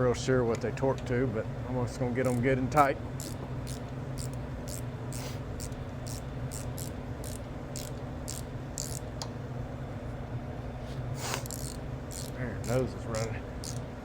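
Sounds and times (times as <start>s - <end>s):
steady low hum: 0.0s - 14.0s
ratchet wrench clicking: 2.2s - 2.5s, 3.2s - 9.0s, 11.4s - 13.9s.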